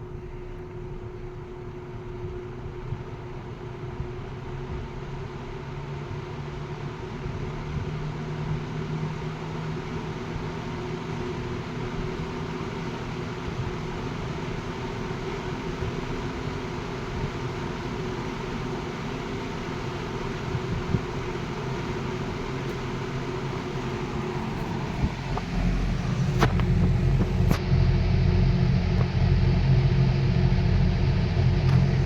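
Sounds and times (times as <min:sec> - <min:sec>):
fan motor hum: 0:00.0 - 0:32.0
fan blades whooshing: 0:09.0 - 0:32.0.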